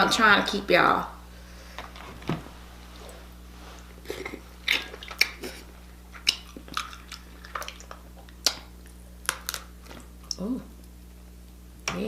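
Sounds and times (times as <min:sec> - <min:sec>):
chewing shellfish meat: 0:03.8 - 0:10.9.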